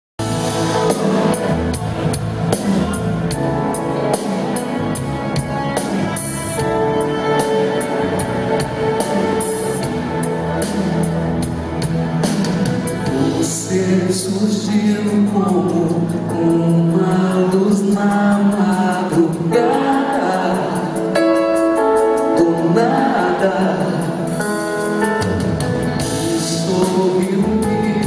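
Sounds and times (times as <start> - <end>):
drum kit steady beat: 0.2 - 14.2, 23.8 - 28.0.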